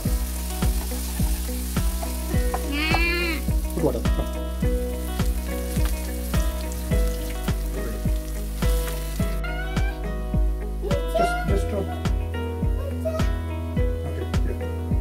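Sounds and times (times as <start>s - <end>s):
onions sizzling in a pan: 0.0s - 11.8s
background music with steady beat: 0.0s - 15.0s.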